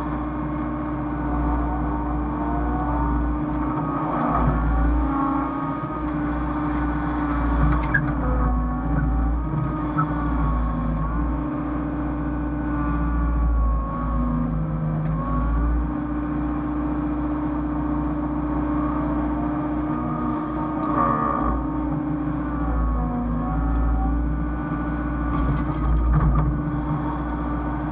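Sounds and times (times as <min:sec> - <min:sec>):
excavator diesel engine running: 0:00.0 - 0:27.9
wavering machine whine: 0:01.1 - 0:16.0.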